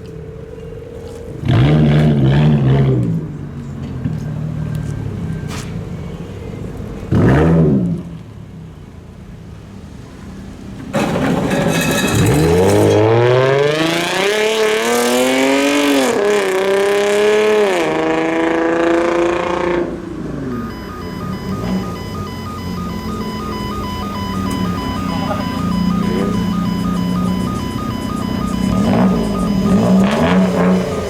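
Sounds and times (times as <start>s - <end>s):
car engine accelerating: 10.9s - 31.0s.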